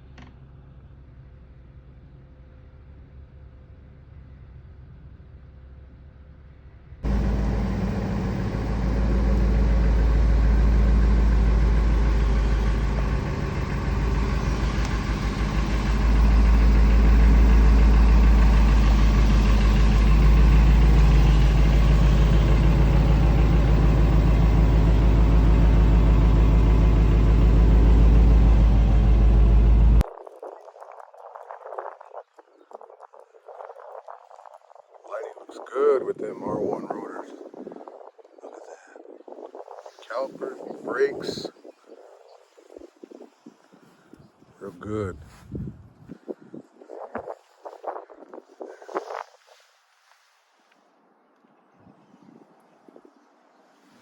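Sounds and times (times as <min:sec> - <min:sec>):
truck engine deep rumble: 0:07.0 - 0:30.0.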